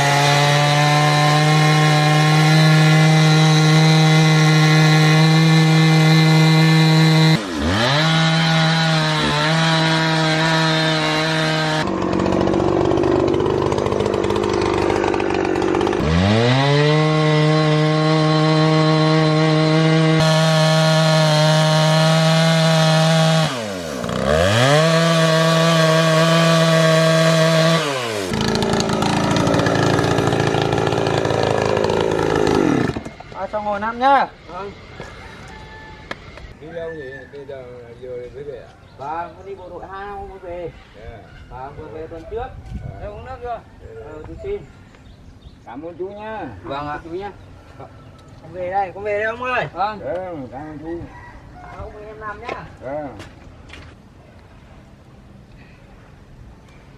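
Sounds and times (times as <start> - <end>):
power saw cutting: 0.0 - 35.1.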